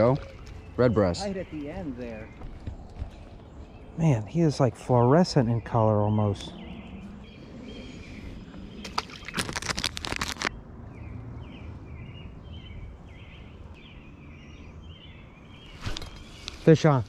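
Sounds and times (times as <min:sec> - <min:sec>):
bird chirping: 0:00.0 - 0:09.3, 0:10.8 - 0:17.0.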